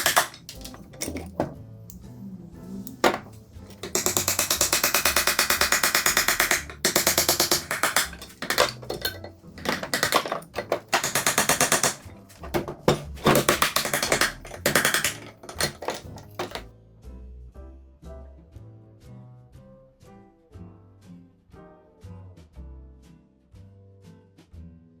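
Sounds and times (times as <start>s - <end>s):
background music: 0.0s - 23.0s.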